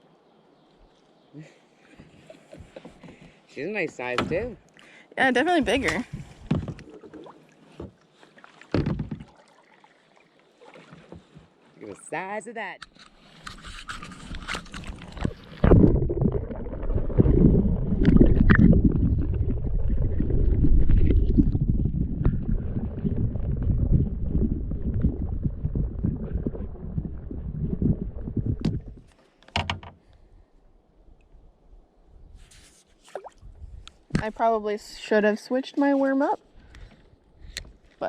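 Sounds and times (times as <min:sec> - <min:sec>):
water splashing: 0:05.6 - 0:12.2, 0:14.0 - 0:29.1, 0:33.0 - 0:33.6
muffled low water rumble: 0:14.2 - 0:29.1.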